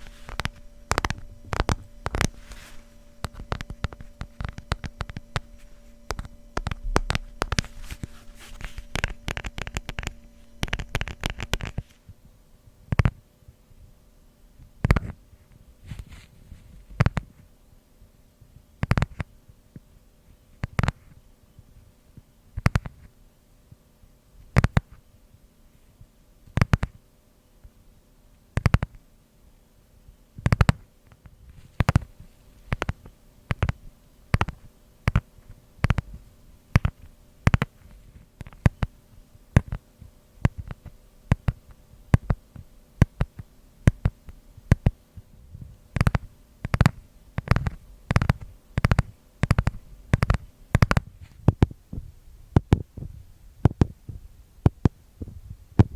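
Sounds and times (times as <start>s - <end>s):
fingers tapping on eraser: 0.0s - 11.9s, 12.9s - 13.2s, 14.8s - 15.2s, 17.0s - 17.3s, 18.8s - 19.3s, 20.6s - 21.1s, 22.6s - 23.0s, 24.5s - 25.0s, 26.5s - 27.0s, 28.6s - 29.0s, 30.4s - 45.0s, 45.9s - 51.8s.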